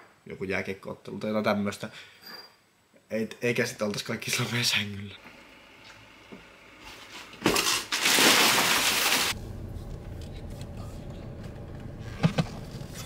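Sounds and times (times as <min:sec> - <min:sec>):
plastic packaging crinkling: 0:07.5 - 0:09.4
car rumble from inside cabin: 0:09.4 - 0:13.0.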